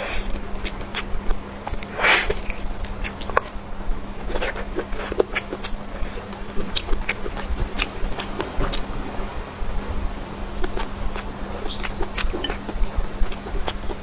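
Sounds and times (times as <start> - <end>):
chewing and mouth smacking: 0.0 - 14.0
faint steady hum: 0.0 - 14.0.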